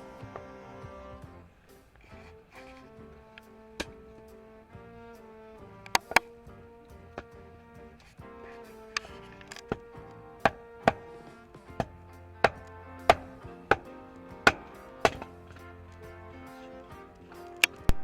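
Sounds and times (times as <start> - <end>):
background music with held notes: 0.0 - 18.0
sharp knocks: 11.8 - 15.4.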